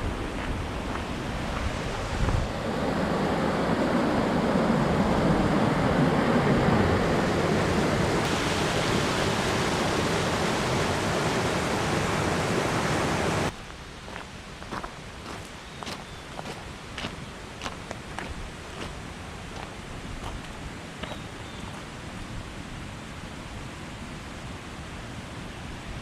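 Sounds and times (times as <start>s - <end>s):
waterfall rushing: 0.9s - 13.5s.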